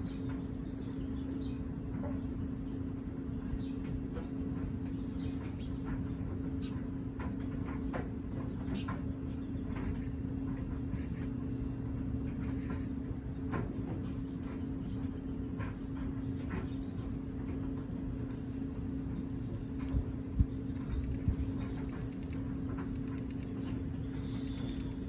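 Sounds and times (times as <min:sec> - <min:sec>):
steady low hum: 0:00.0 - 0:25.0
parrot beak crunching food: 0:16.4 - 0:25.0.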